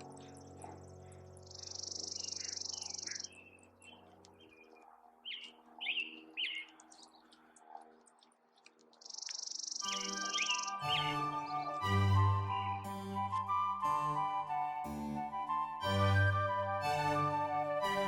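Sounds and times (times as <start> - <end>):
loud downward-slurred bird calls: 0.0 - 4.6, 9.0 - 13.1
soft sustained music notes: 0.0 - 4.6, 9.8 - 18.0
songbird buzzy trill: 0.0 - 7.2, 9.0 - 14.3
bird chirps: 0.0 - 7.6, 8.9 - 12.9.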